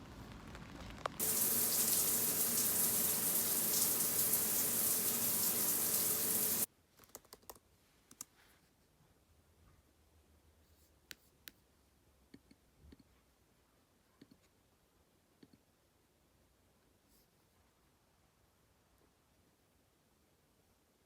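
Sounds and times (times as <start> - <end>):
water running from a tap: 1.2 - 6.7.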